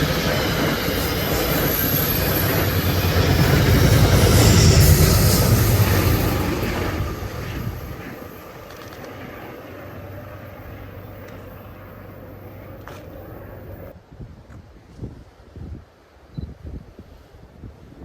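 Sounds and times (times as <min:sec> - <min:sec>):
train passing: 0:00.0 - 0:14.0.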